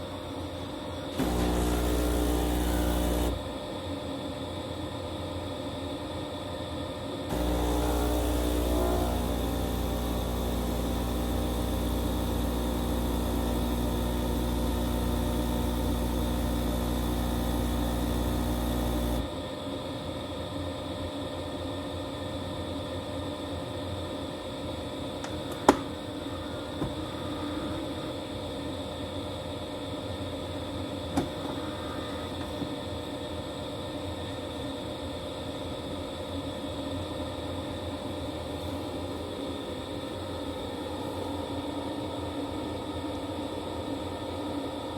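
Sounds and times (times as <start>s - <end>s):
espresso machine buzzing hum: 1.0s - 3.6s, 7.3s - 19.4s.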